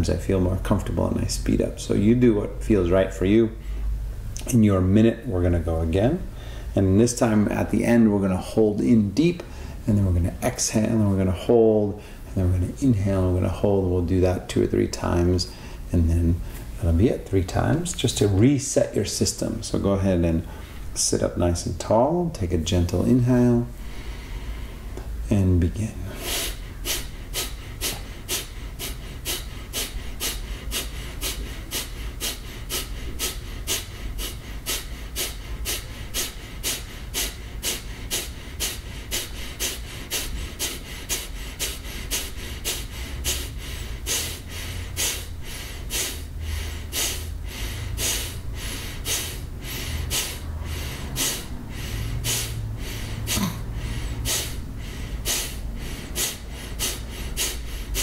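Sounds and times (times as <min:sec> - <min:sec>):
forceful nasal exhalations: 0:26.0 - 0:58.0.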